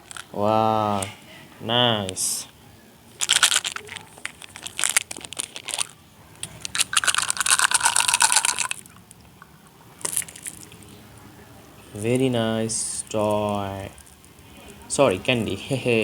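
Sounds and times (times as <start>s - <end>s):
plastic packaging crinkling: 0.0s - 0.3s, 3.1s - 9.0s, 10.0s - 10.8s.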